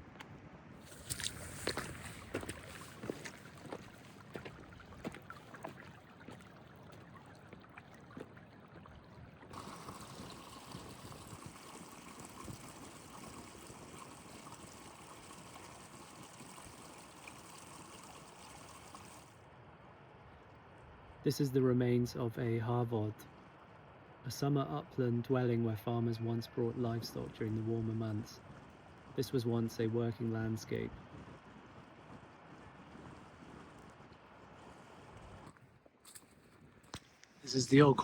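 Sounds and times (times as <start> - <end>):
wind: 0.0 - 38.0
footsteps on wet ground: 0.1 - 9.0, 35.4 - 37.5
rain: 9.5 - 19.4.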